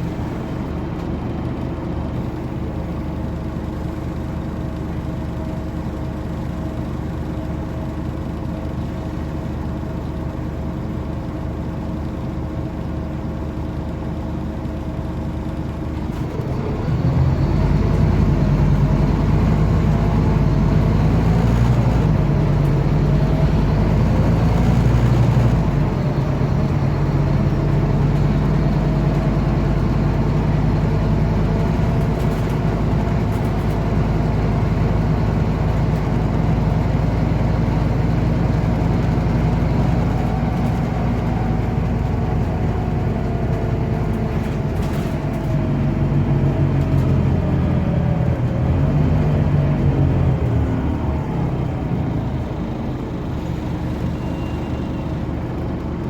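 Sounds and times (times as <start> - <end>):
bus diesel engine: 0.0 - 56.0.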